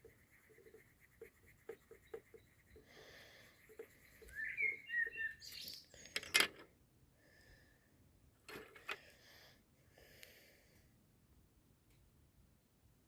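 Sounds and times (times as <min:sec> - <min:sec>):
pencil scratching on paper: 0:00.0 - 0:05.1.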